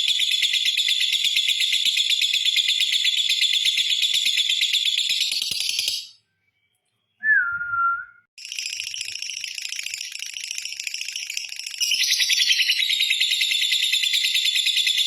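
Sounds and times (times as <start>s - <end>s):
short whistled bird note: 7.2s - 8.3s.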